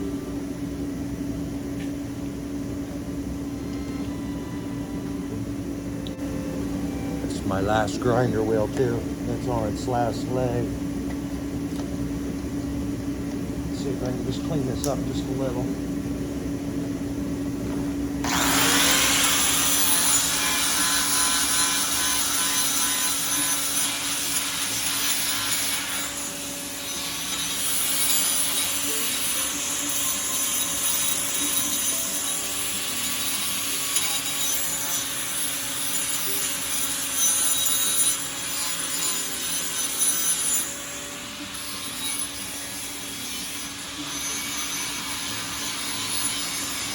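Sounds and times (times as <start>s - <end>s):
electric grinder grinding metal: 18.2s - 46.9s.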